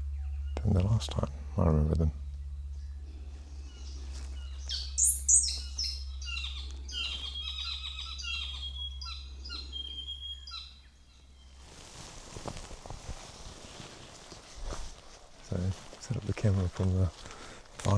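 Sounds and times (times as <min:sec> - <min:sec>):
low hum: 0:00.0 - 0:17.9
songbird chirps and whistles: 0:02.2 - 0:12.5.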